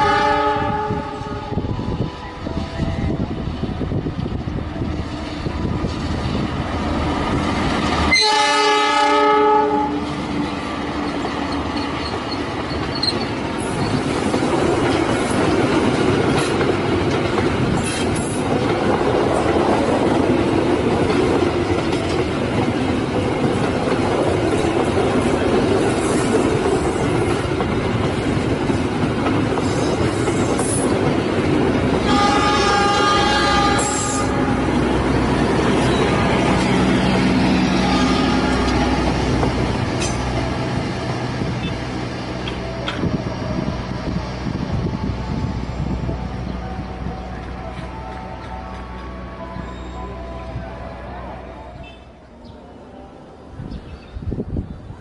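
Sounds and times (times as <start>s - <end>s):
locomotive horn blast: 0.0s - 1.7s, 8.1s - 10.2s, 32.0s - 34.9s, 35.8s - 39.4s, 46.6s - 52.2s
train rumbling past: 0.0s - 55.0s.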